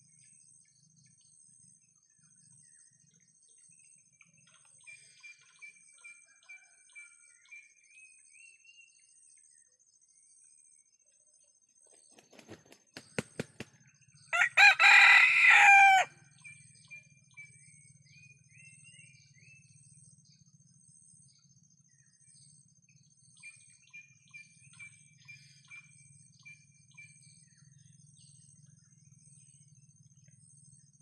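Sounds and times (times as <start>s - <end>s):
faint small bird chirps: 0.0s - 14.3s, 16.3s - 31.0s
rooster wings flapping: 12.0s - 13.8s
rooster crowing: 14.3s - 16.2s.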